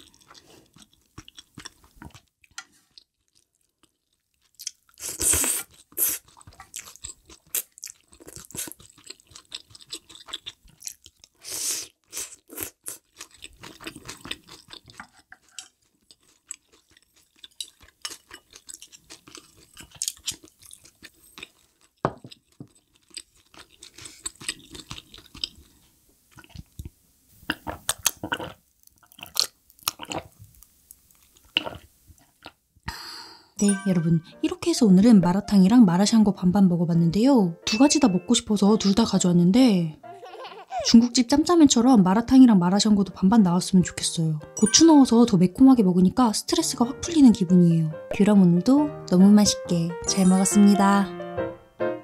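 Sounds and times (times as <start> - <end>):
close chewing and crunching: 0.0 - 32.6.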